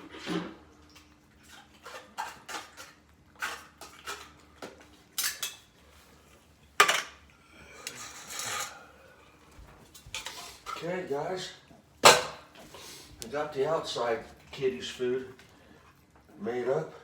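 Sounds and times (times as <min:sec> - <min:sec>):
utensil scraping dish: 0:01.4 - 0:04.4, 0:07.7 - 0:08.9
utensil clinking on dishes: 0:05.2 - 0:05.7.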